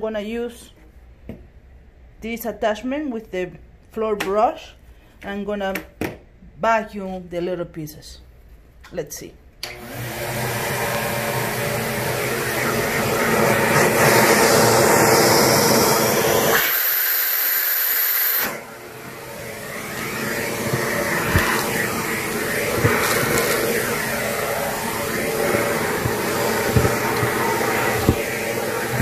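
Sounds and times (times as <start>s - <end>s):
backpack vacuum running: 9.7s - 29.0s.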